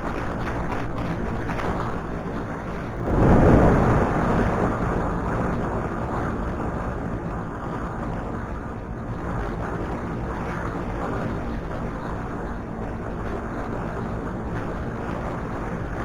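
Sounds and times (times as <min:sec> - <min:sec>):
wind rushing over microphone: 0:00.0 - 0:09.6.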